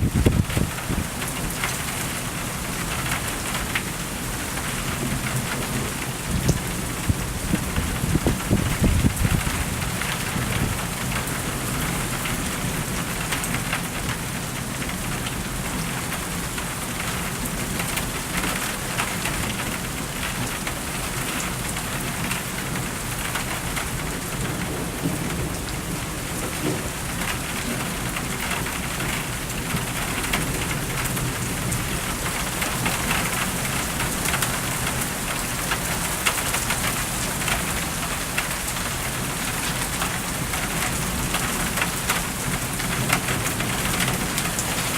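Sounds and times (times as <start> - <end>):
thunder rumbling: 0.0 - 1.2, 6.4 - 10.9
steady rain: 0.0 - 44.9.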